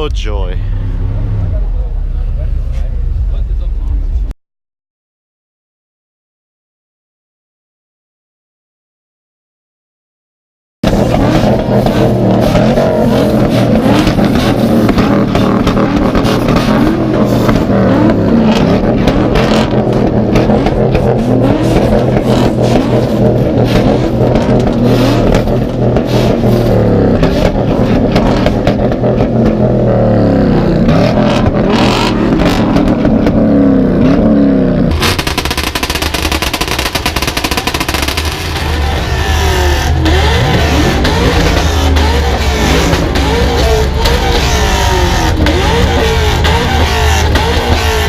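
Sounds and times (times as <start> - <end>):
car engines revving: 0.0 - 4.3, 10.8 - 48.0
constant low rumble: 0.0 - 4.4, 10.9 - 48.0
lower-pitched engine noise: 10.8 - 48.0.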